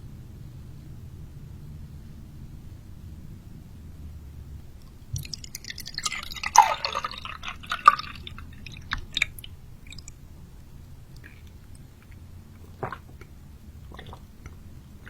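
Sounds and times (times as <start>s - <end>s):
wet crackling eating sounds: 4.8s - 15.0s.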